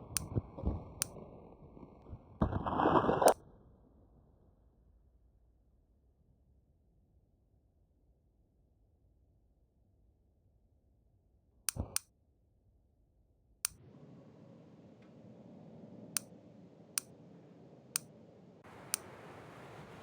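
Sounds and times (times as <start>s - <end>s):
sharp clicks: 11.7s - 12.0s, 17.9s - 18.1s
faint hiss: 13.7s - 20.0s.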